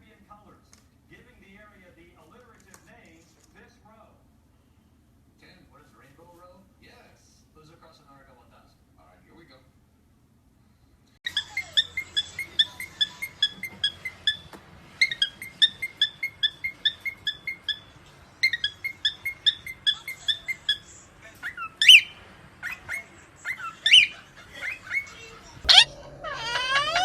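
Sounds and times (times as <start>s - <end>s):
pet bird chirping: 11.3s - 27.0s.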